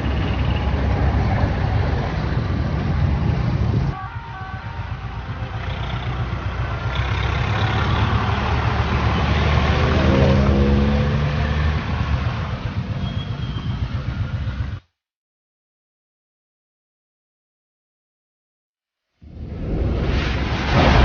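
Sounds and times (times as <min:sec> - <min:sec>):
street traffic engines: 0:00.0 - 0:14.9
engine accelerating: 0:04.5 - 0:14.8.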